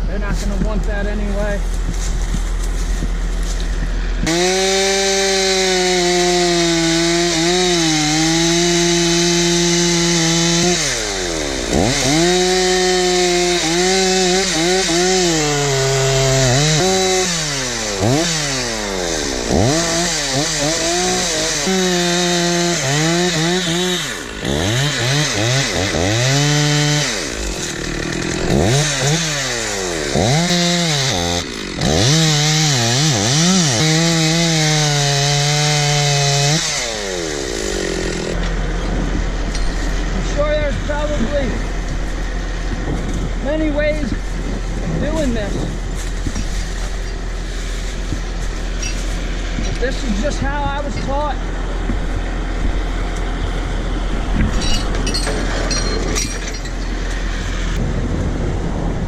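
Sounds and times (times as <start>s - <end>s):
chainsaw revving: 4.0s - 38.8s, 54.5s - 57.8s.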